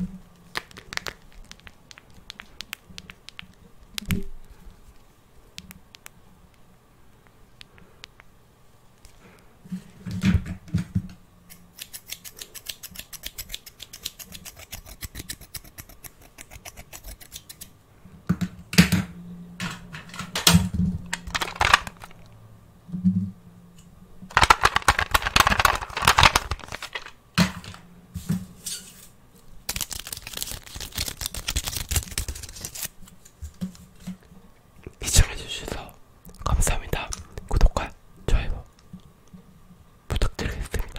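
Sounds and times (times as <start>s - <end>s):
rapid tapping on objects: 24.3s - 27.8s.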